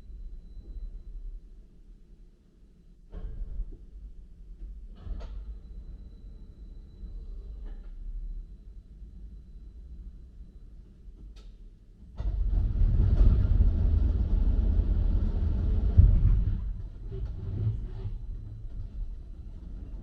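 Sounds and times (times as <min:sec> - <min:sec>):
car-park machinery rumbling: 0:12.0 - 0:20.0.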